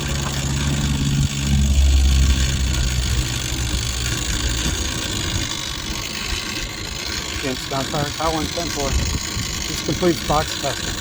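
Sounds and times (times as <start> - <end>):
vehicle engine running at low revs: 0.0 - 7.6.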